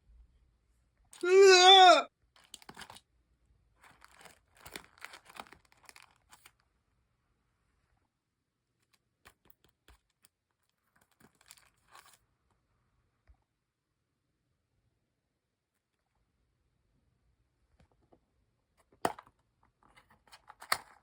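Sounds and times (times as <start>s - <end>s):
crinkling and rustling: 2.3s - 3.0s, 3.8s - 6.7s, 8.8s - 12.3s, 18.8s - 21.0s.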